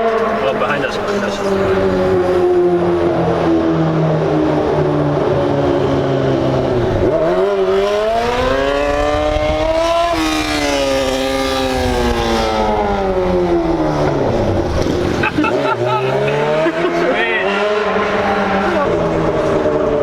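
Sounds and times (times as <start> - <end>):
vehicle engine revving hard: 5.7 - 20.0.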